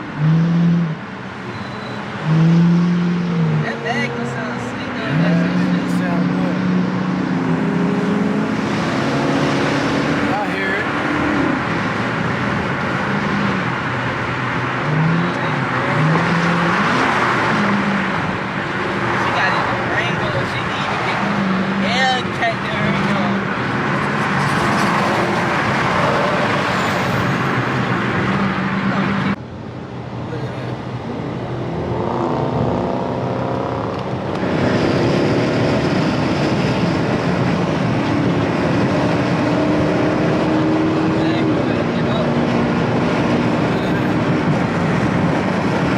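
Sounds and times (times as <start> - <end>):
cars driving in traffic: 0.0 - 45.9.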